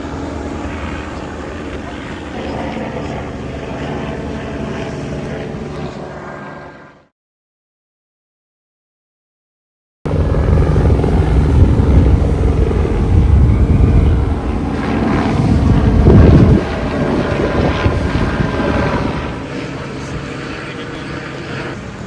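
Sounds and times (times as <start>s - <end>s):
helicopter rotor and engine: 0.0s - 7.1s, 10.1s - 22.0s
wind noise on microphone: 10.1s - 19.4s.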